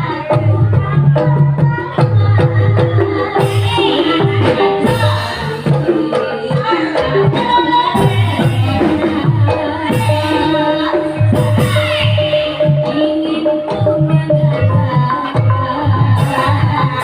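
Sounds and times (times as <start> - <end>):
drum strokes: 0.0 - 17.0.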